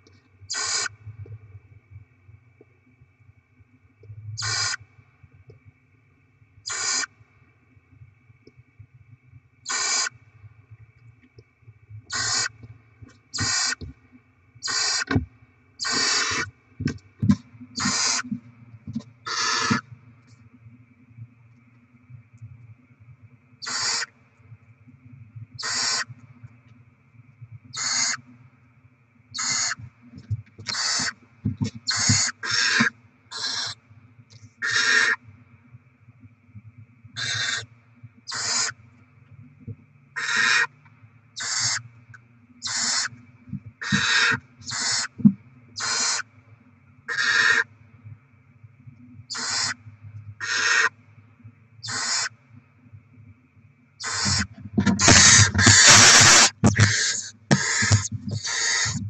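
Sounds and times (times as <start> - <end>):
faint electrical hum: 0.0 - 59.0
owl chicks hissing: 0.5 - 0.9, 4.4 - 4.8, 6.6 - 7.1, 9.7 - 10.2, 12.1 - 12.6, 13.3 - 13.8, 14.6 - 15.2, 15.8 - 16.5, 17.8 - 18.3, 19.3 - 19.8, 23.6 - 24.1, 25.6 - 26.1, 27.8 - 28.2, 29.4 - 29.8, 30.7 - 31.2, 31.9 - 33.8, 34.6 - 35.2, 37.2 - 37.6, 38.3 - 38.7, 40.2 - 40.7, 41.4 - 41.8, 42.6 - 43.1, 43.8 - 45.2, 45.8 - 46.2, 47.1 - 47.6, 49.3 - 49.8, 50.4 - 50.9, 51.8 - 52.3, 54.0 - 59.0
owlets rasping hisses: 54.0 - 59.0.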